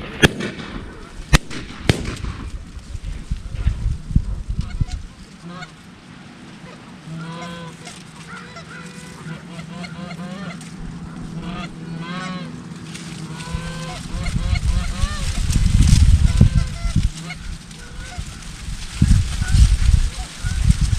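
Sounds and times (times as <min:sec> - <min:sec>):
low hum: 0:00.0 - 0:20.9
geese honking: 0:04.5 - 0:20.9
loud low rumble: 0:09.8 - 0:20.9.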